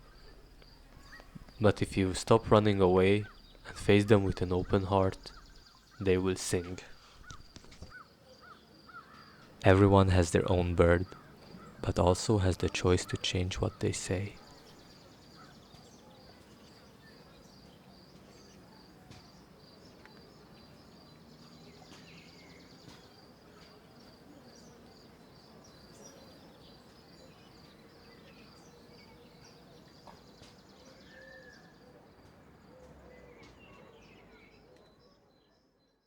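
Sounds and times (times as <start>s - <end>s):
soft steady hiss: 0.0s - 15.5s
bird-like calls: 0.0s - 17.7s.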